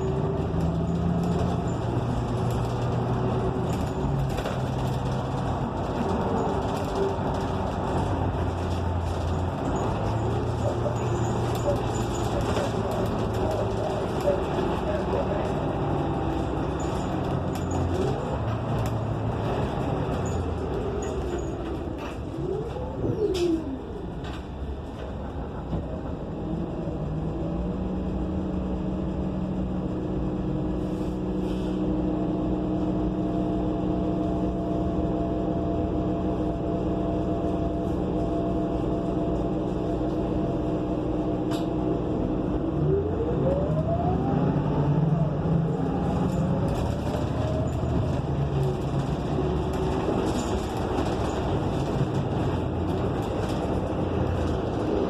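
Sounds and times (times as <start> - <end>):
vehicle engine running: 0.0 - 22.3.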